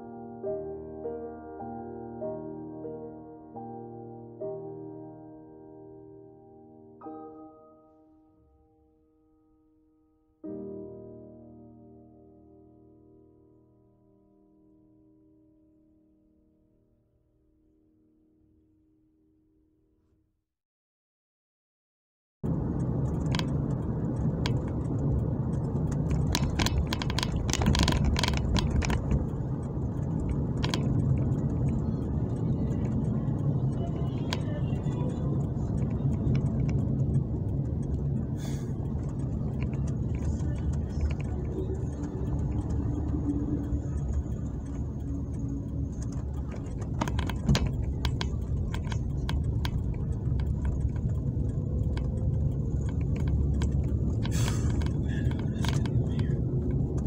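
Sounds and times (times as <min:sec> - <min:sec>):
car engine rumble: 0:22.4 - 0:57.0
light clicks and rattles: 0:22.4 - 0:57.0
tyres on wet road: 0:22.5 - 0:57.0.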